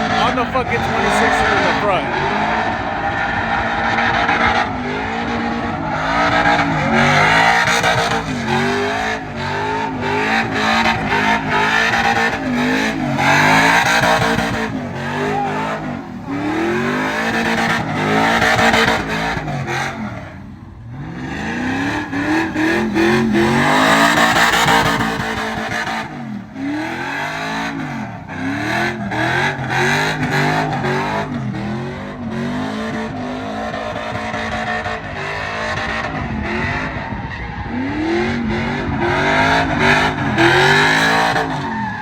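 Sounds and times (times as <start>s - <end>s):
truck engine revving: 0.0s - 42.0s.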